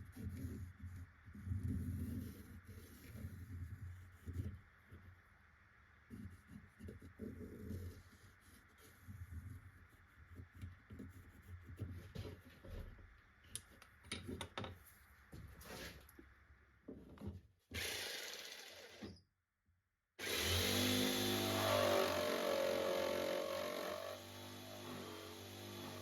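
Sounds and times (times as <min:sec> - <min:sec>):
electric power tool running: 0:17.8 - 0:19.0, 0:20.2 - 0:26.0.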